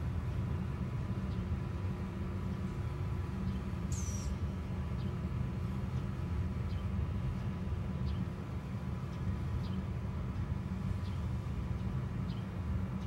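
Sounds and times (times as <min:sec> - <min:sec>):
steady low rumble: 0:00.0 - 0:13.0
faint bird chirps: 0:03.4 - 0:05.2.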